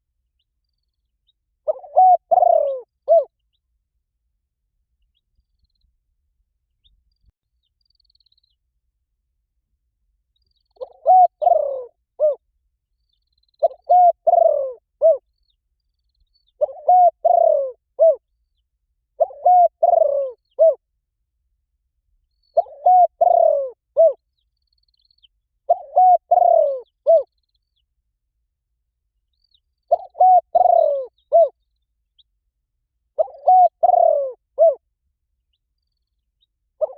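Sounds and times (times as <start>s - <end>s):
dove cooing: 1.6s - 3.3s, 10.8s - 12.4s, 13.6s - 15.2s, 16.6s - 18.2s, 19.2s - 20.8s, 22.6s - 24.2s, 25.7s - 27.3s, 29.9s - 31.6s, 33.2s - 34.8s.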